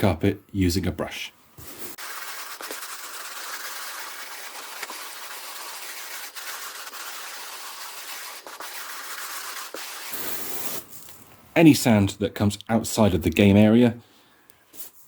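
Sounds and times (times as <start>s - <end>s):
brush scrubbing carpet: 1.6s - 10.8s.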